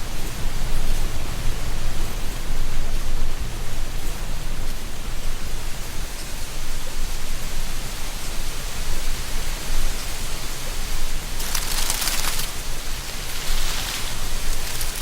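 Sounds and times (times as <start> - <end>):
wind through trees: 0.0 - 15.0
dry leaves rustling: 11.1 - 15.0.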